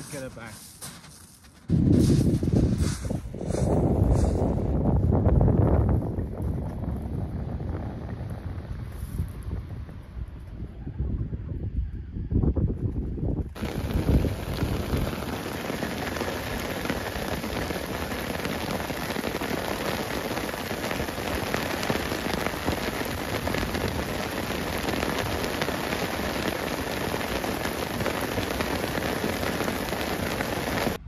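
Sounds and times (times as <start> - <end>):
rain pattering: 13.6 - 31.0.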